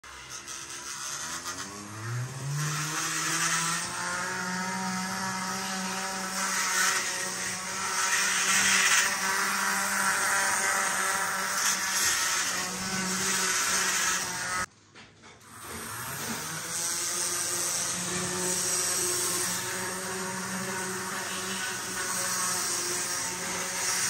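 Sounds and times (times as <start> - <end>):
grinding noise: 0.1 - 14.7, 15.6 - 24.0
electric motor and gear whine: 1.2 - 14.7.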